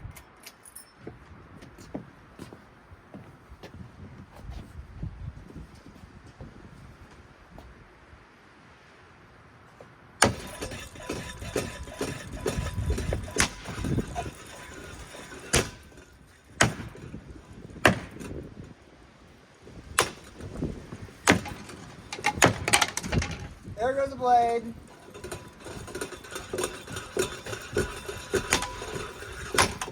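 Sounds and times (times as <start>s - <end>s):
ceiling fan rattling and banging: 10.2s - 18.9s, 19.8s - 29.9s.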